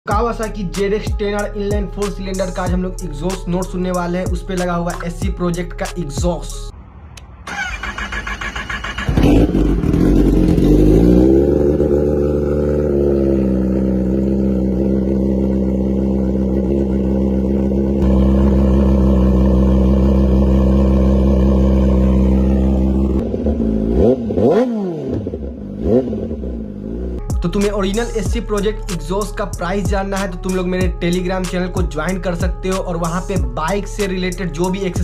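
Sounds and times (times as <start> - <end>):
motorcycle engine revving and idling: 8.5 - 27.3.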